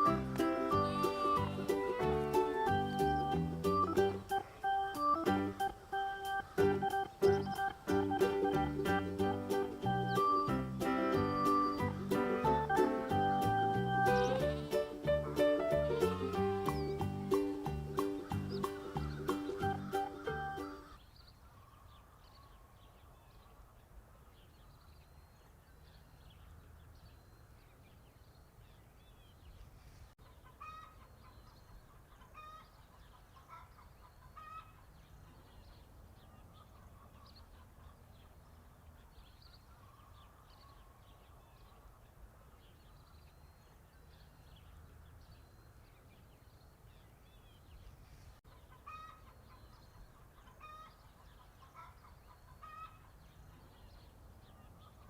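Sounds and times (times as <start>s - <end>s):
chickens clucking: 0.0s - 21.0s, 30.2s - 35.5s, 48.5s - 54.2s.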